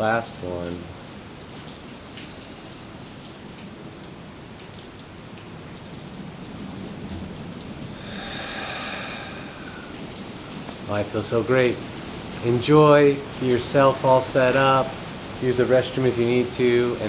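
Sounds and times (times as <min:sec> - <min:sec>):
rain and storm: 0:00.0 - 0:17.0
person breathing deeply: 0:08.0 - 0:10.1.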